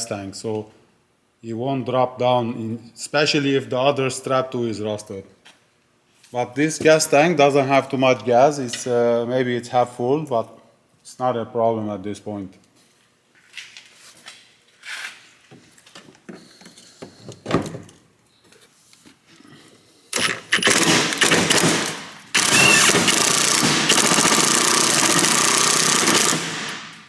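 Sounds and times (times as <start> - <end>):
impact gun rattling: 20.2 - 27.0.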